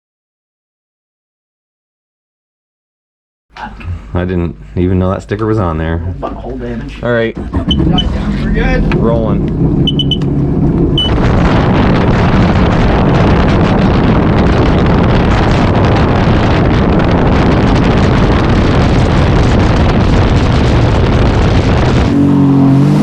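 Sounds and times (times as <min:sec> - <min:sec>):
wind buffeting microphone: 0:06.1 - 0:23.0
watercraft engine running: 0:06.4 - 0:22.4.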